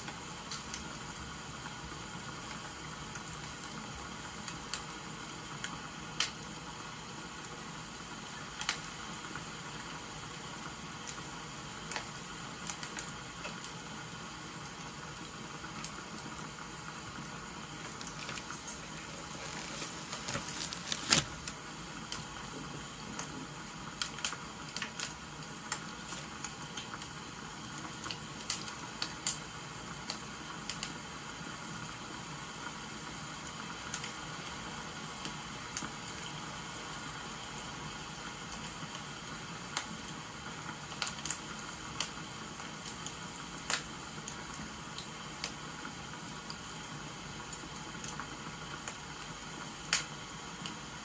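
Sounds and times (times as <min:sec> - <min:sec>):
rain hiss: 0:00.0 - 0:51.0
wood fire crackling: 0:02.3 - 0:31.0, 0:38.2 - 0:45.8.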